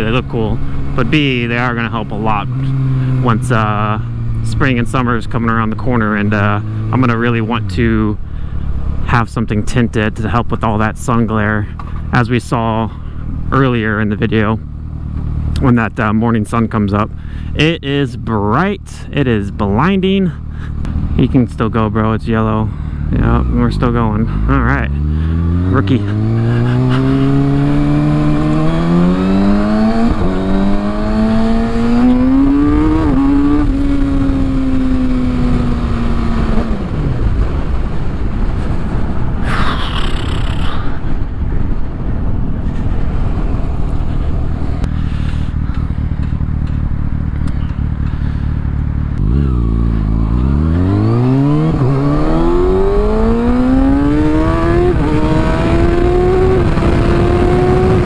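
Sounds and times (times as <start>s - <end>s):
motorcycle engine accelerating: 0.0s - 58.0s
wind noise on microphone: 24.3s - 58.0s.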